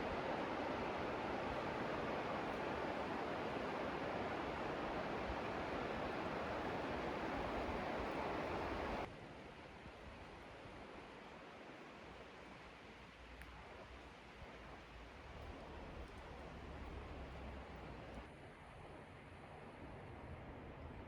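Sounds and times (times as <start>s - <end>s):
running water rushing: 0.0s - 9.1s
faint background hiss: 0.0s - 21.0s.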